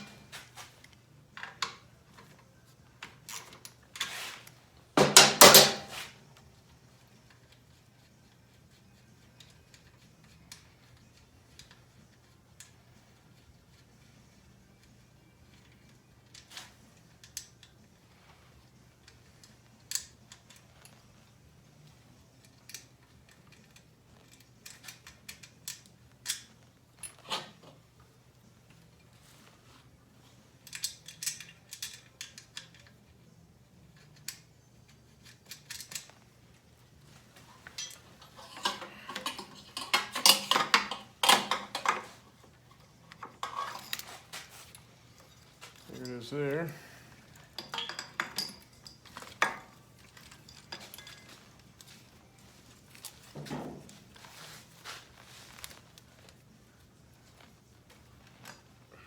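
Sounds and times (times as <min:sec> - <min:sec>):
metal tools clinking: 0:05.0 - 0:06.0, 0:30.6 - 0:33.0, 0:37.4 - 0:56.4.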